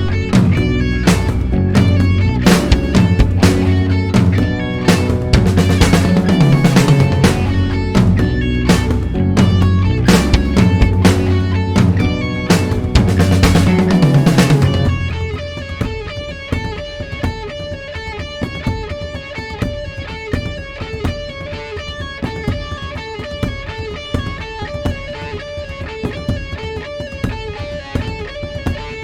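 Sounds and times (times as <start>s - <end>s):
full band music: 0.0s - 15.9s
guitar single notes: 0.0s - 16.5s
ticking beat: 0.0s - 16.8s.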